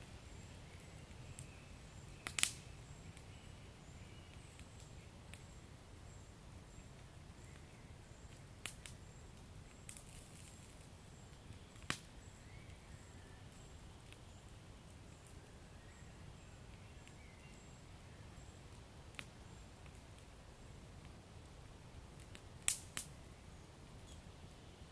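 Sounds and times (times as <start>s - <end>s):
fire crackling and popping: 0.0s - 24.9s
wood fire rumbling: 18.8s - 23.1s.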